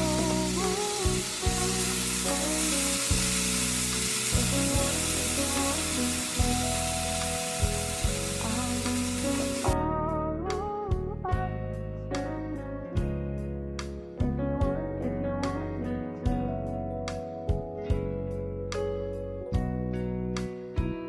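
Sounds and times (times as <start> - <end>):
food sizzling in a pan: 0.0 - 9.8
background music: 0.0 - 21.0.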